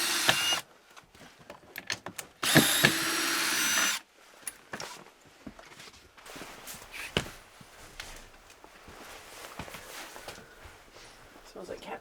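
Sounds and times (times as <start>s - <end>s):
power drill running: 0.0s - 0.6s, 2.4s - 4.0s.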